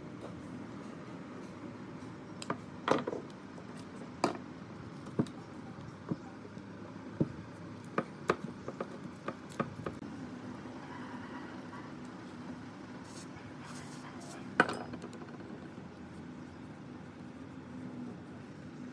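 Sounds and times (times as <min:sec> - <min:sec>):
low steady hum: 0:00.0 - 0:18.9
hard objects clicking and knocking: 0:14.6 - 0:15.7.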